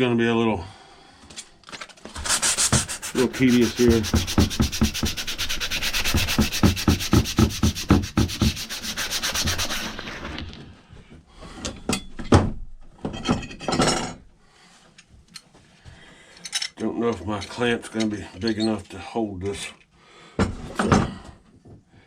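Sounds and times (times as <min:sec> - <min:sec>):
hand scrubbing axe head: 0:02.2 - 0:10.4.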